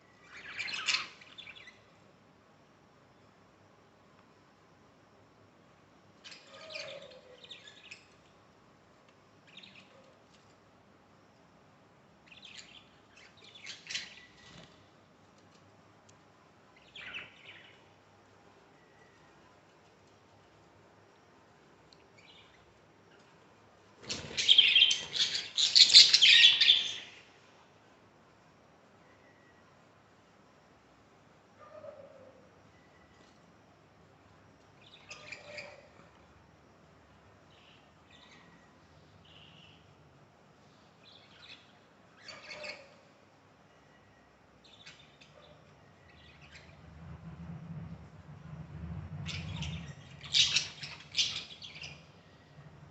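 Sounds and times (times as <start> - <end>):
budgerigars chirping: 24.1 - 27.2, 34.9 - 35.8, 42.2 - 43.0, 49.3 - 52.0
low hum: 46.3 - 50.8.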